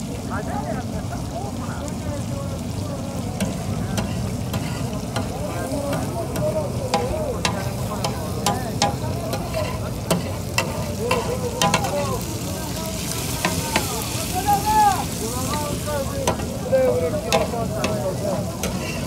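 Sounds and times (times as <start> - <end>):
liver sizzling on a griddle: 0.0 - 19.0
metal spatula scraping griddle: 3.4 - 12.2, 15.4 - 19.0.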